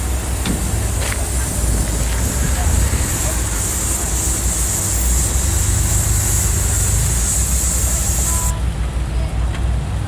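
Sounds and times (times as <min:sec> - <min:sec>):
high hiss: 0:00.0 - 0:08.6
car engine rumbling: 0:00.0 - 0:10.0
road or wind hiss: 0:00.0 - 0:10.0.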